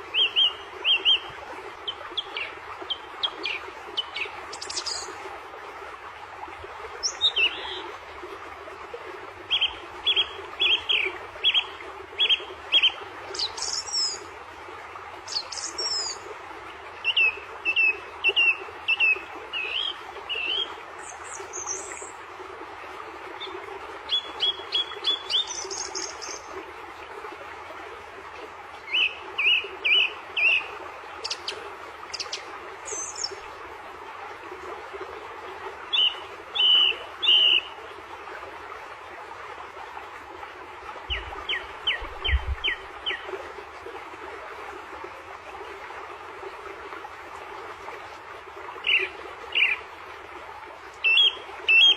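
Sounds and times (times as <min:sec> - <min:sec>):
songbirds chirping: 0:41.1 - 0:43.4.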